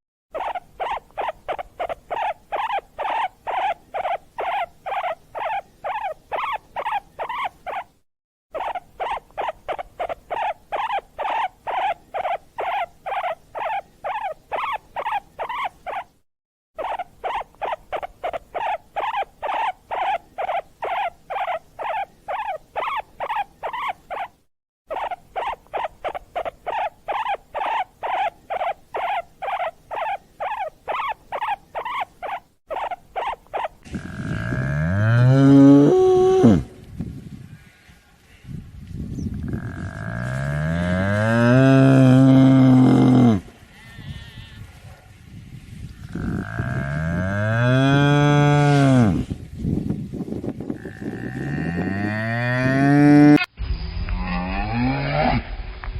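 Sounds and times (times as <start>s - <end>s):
animal squeaky calls: 0.3s - 16.2s, 16.8s - 33.8s.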